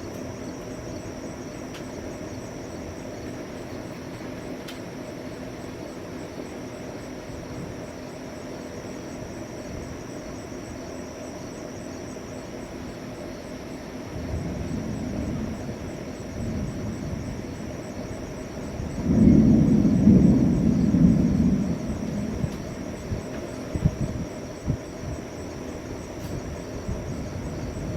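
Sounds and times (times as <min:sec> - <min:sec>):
thunder rumbling: 0:14.1 - 0:27.9.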